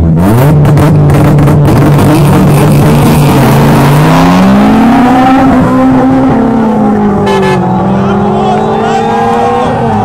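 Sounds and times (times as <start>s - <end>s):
race cars accelerating hard: 0.0s - 10.0s.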